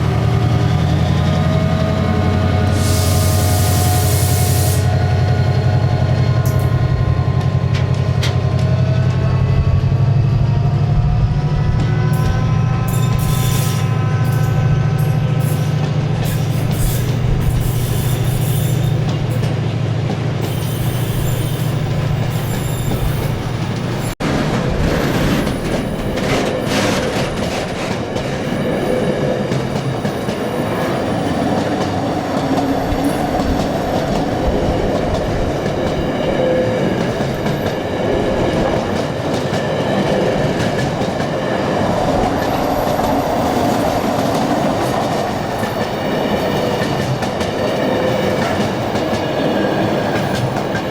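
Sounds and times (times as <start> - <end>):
train clatter over rail joints: 11.8 - 50.9.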